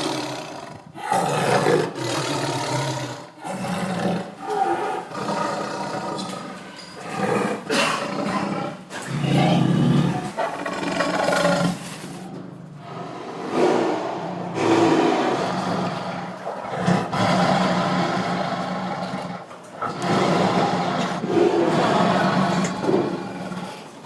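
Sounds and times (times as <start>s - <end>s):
tiger roaring and growling: 0.0s - 24.0s.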